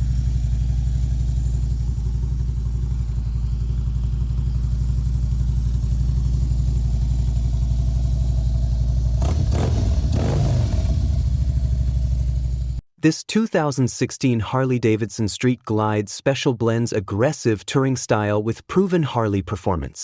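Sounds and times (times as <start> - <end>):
motorcycle engine idling: 0.0 - 12.8.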